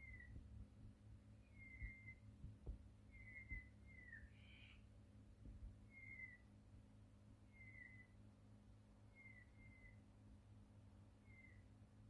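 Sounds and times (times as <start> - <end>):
faint bird whistles: 0.0 - 0.4, 1.4 - 2.3, 3.1 - 4.8, 5.9 - 6.4, 7.5 - 8.2, 9.1 - 10.0, 11.2 - 11.6.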